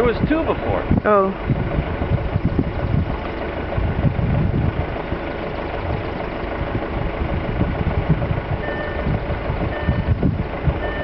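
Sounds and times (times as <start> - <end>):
steady rumble: 0.0 - 11.0
wind buffeting microphone: 0.0 - 11.0
short high electronic beep: 8.6 - 9.1.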